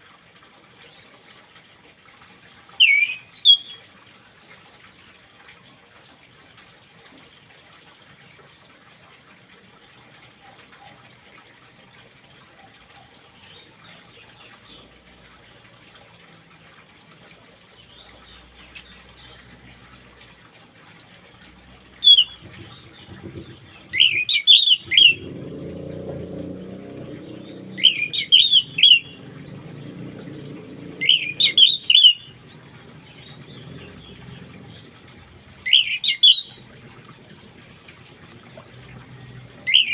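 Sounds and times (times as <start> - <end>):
thrush singing: 22.1 - 35.0.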